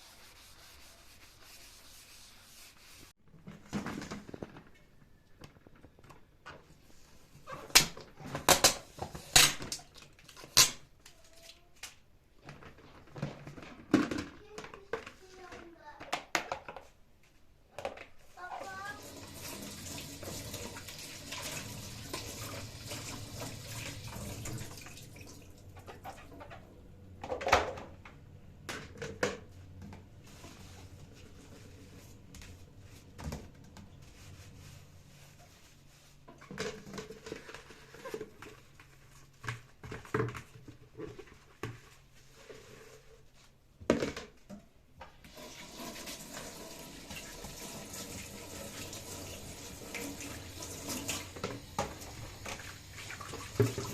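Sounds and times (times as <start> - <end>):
tap water running into sink: 18.6 - 26.2, 45.2 - 53.9.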